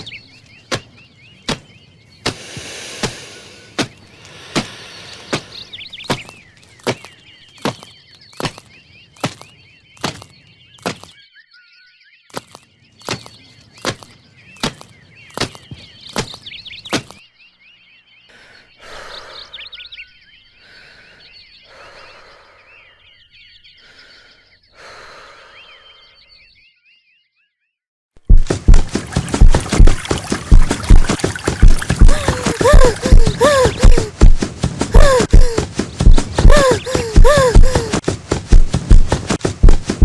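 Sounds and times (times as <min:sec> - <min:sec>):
birds chirping: 0:00.0 - 0:27.6, 0:28.6 - 0:40.0
heavy footsteps thudding: 0:28.3 - 0:40.0.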